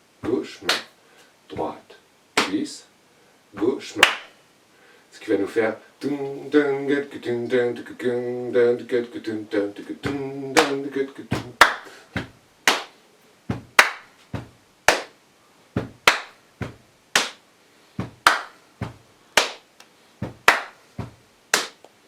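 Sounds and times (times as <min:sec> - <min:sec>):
hands slapping thighs: 0:00.2 - 0:00.9, 0:02.4 - 0:02.6, 0:03.6 - 0:04.3, 0:10.0 - 0:15.2, 0:15.8 - 0:17.4, 0:18.0 - 0:22.0
sharp hand claps: 0:00.6 - 0:00.9, 0:02.4 - 0:02.6, 0:04.0 - 0:04.3, 0:10.1 - 0:13.0, 0:13.6 - 0:15.2, 0:15.8 - 0:17.4, 0:18.0 - 0:19.7, 0:20.3 - 0:21.9.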